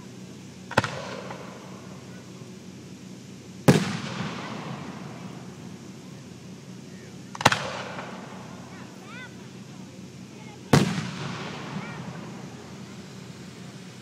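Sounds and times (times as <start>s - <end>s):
fireworks bangs with echo: 0.7s - 2.2s, 3.6s - 6.1s, 7.2s - 8.8s, 10.7s - 14.0s.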